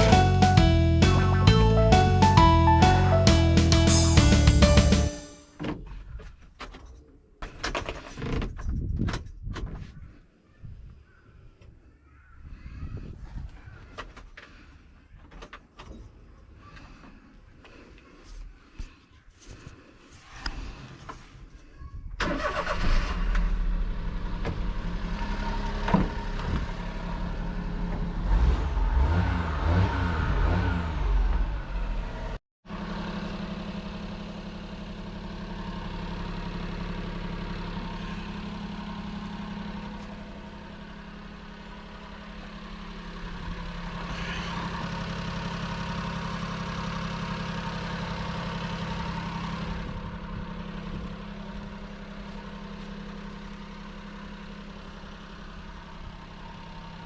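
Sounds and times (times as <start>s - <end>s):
small truck engine revving: 0.0s - 5.2s, 22.3s - 51.3s
truck engine idling: 0.0s - 5.4s, 32.7s - 57.0s.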